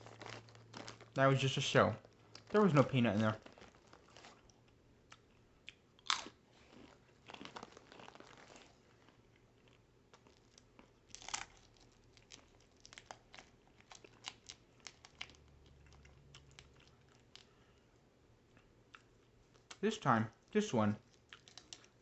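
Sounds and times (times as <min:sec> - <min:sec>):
chewing crunches: 0:00.0 - 0:01.4, 0:02.0 - 0:17.7, 0:20.4 - 0:22.0
crinkly rustle: 0:00.0 - 0:04.6, 0:06.6 - 0:09.2
peanut shells cracking: 0:05.7 - 0:06.4, 0:09.7 - 0:17.5, 0:21.1 - 0:22.0.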